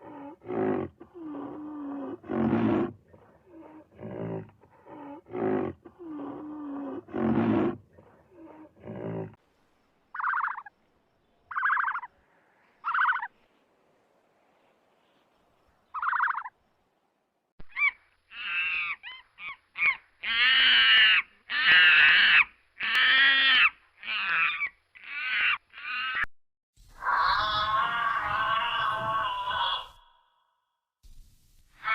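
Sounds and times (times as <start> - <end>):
harsh wavering animal calls: 10.2 - 10.7, 11.5 - 12.1, 12.8 - 13.3, 27.0 - 30.4
low rough roaring calls: 27.0 - 30.4.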